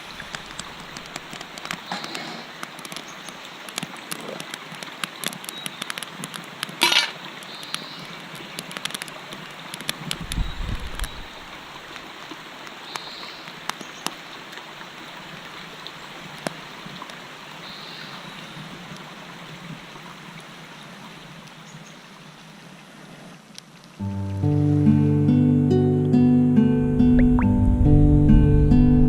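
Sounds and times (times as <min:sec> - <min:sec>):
stream running: 0:00.0 - 0:24.5
guitar music: 0:24.0 - 0:29.0.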